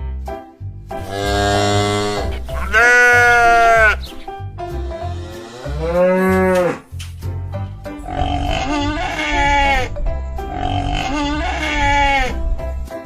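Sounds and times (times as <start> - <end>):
bouncy children's music: 0.0 - 13.0
farm animal bleats: 1.0 - 4.2, 8.0 - 9.9, 10.5 - 12.4.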